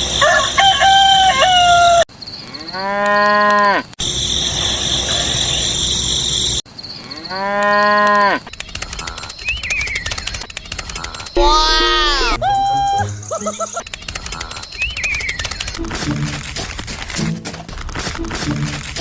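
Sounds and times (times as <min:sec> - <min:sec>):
rooster crowing: 0:00.2 - 0:02.1.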